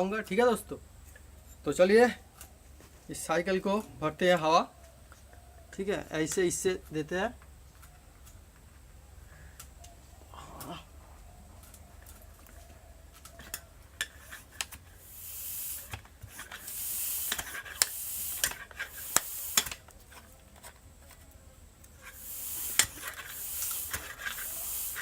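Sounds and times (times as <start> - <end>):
bicycle pump hissing: 13.2 - 20.7, 21.9 - 25.0
sharp metallic clicks and knocks: 15.9 - 20.7.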